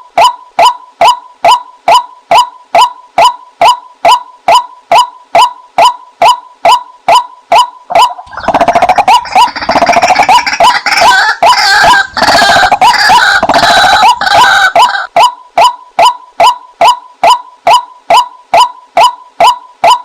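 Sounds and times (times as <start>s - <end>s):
waterhen kwak calls: 7.6s - 15.1s
harsh chorus of bird calls: 7.9s - 15.1s.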